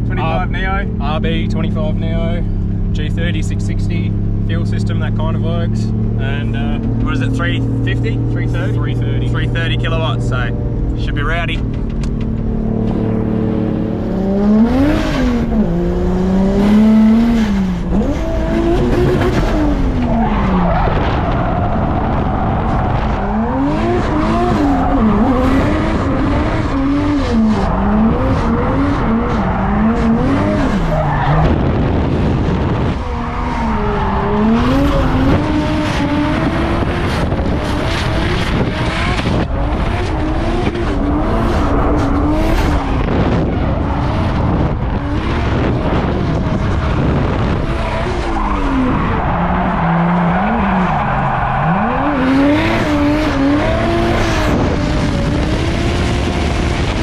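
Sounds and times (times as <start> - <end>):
car engine revving hard: 0.0 - 57.0
tyre squeal and skid: 47.9 - 53.6.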